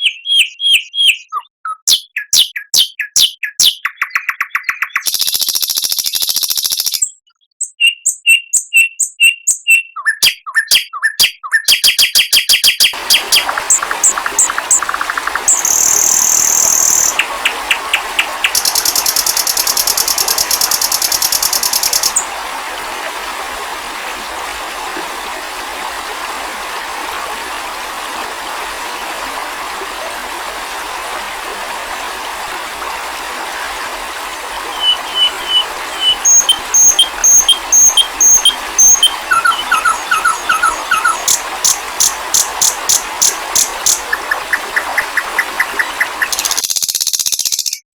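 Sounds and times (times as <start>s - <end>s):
songbird trills and chirps: 0.0s - 22.3s, 34.7s - 47.8s
steady hiss: 13.0s - 26.2s.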